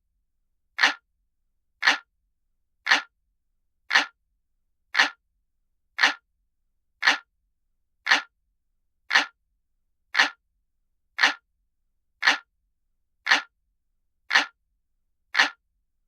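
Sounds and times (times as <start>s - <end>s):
clock ticking: 0.8s - 1.0s, 1.8s - 2.1s, 2.9s - 3.1s, 3.9s - 4.2s, 5.0s - 5.2s, 6.0s - 6.2s, 7.0s - 7.3s, 8.1s - 8.3s, 9.1s - 9.4s, 10.2s - 10.4s, 11.2s - 11.4s, 12.2s - 12.5s, 13.3s - 13.5s, 14.3s - 14.6s, 15.4s - 15.6s.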